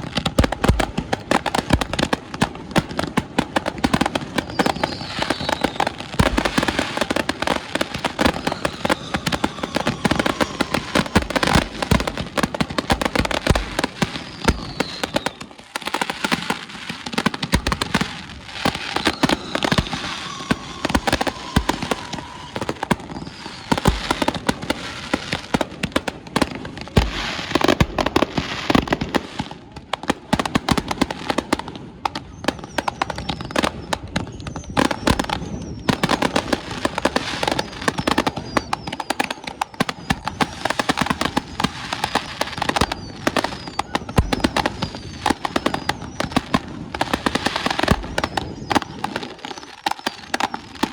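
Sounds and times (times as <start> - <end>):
fireworks bangs and crackling: 0.0 - 50.9
firework whistles falling in pitch: 4.1 - 15.6, 17.6 - 25.2, 32.1 - 50.9.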